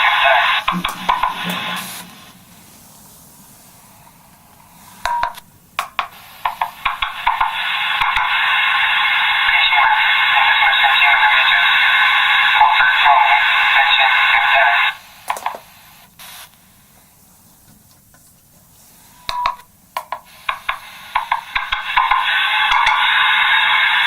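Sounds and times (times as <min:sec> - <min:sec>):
garbled tinny megaphone playback: 0:00.0 - 0:02.8, 0:06.1 - 0:16.5
tinny bursts: 0:00.0 - 0:04.1.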